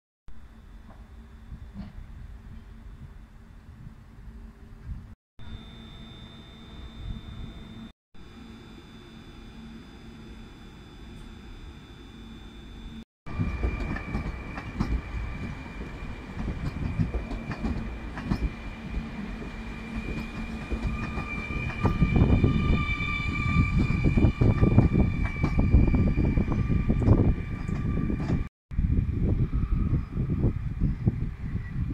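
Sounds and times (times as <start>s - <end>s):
steady high whine: 5.4s - 31.3s
train rumble: 13.3s - 31.9s
wheels clacking over rail joints: 13.6s - 22.0s.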